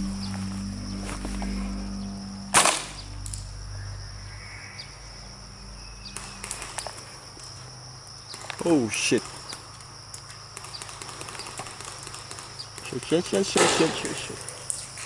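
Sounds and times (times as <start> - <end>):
airsoft gun shot: 2.5 - 2.9, 13.6 - 14.1.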